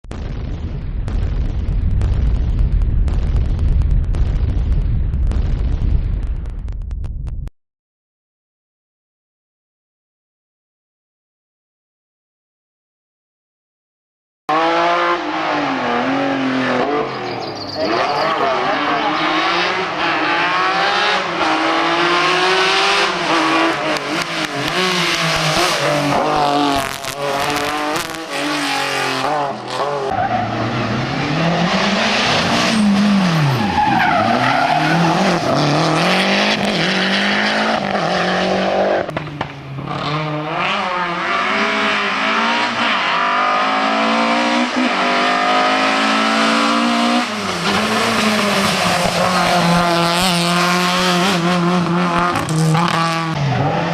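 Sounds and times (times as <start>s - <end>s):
rally car engines revving: 14.5s - 53.9s.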